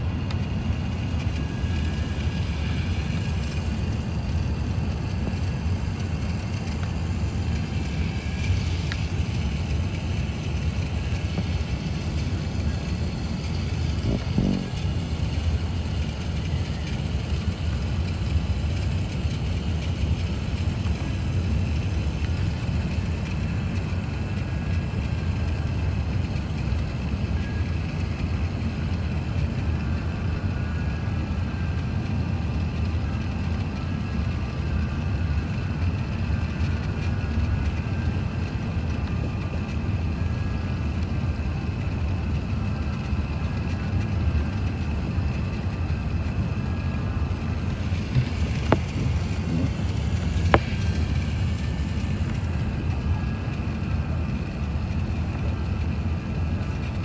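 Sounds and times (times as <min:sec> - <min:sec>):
aircraft cabin rumble: 0:00.0 - 0:57.0
faint steady tones: 0:00.0 - 0:57.0.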